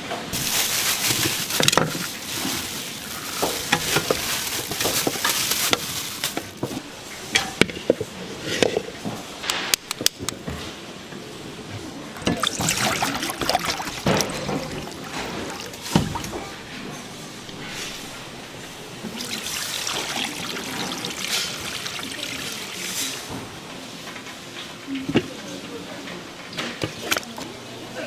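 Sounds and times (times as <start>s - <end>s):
liquid being stirred: 0.3s - 6.8s, 12.2s - 16.4s, 19.0s - 23.3s
utensils clacking: 0.3s - 8.0s.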